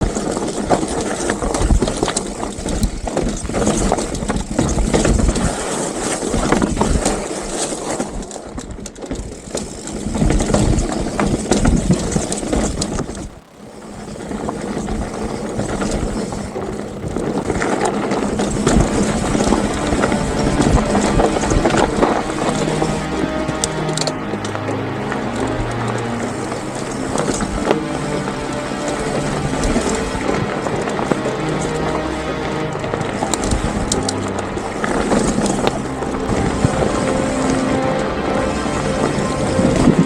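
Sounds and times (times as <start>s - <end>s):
bike rattling and knocking: 0.0s - 19.7s.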